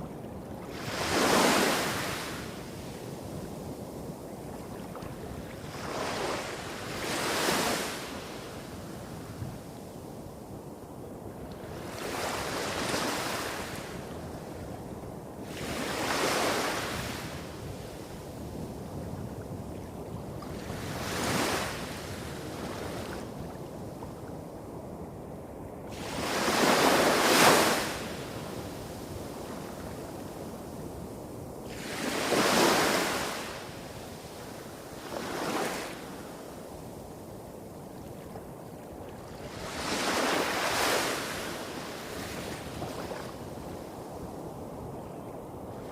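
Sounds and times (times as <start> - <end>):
small waves breaking on shore: 0.0 - 9.4, 15.4 - 24.0, 25.9 - 30.8, 31.6 - 37.0, 37.6 - 45.9.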